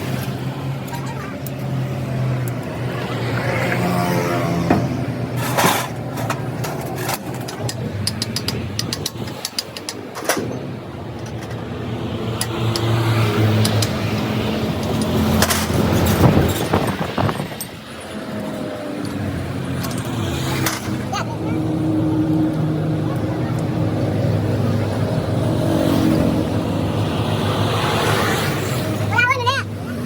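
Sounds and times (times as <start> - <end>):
engine humming: 0.0 - 30.0
sharp clicks and knocks: 4.6 - 21.1.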